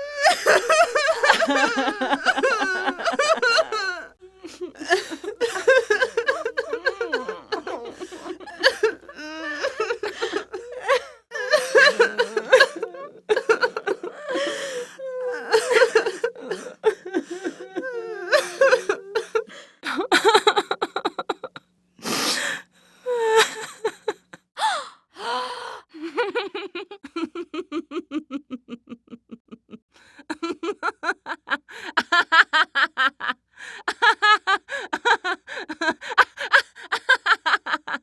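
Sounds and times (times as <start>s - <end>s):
rapid pulsed laughter: 0.2s - 19.4s
person gasping: 1.1s - 20.0s, 24.6s - 25.8s.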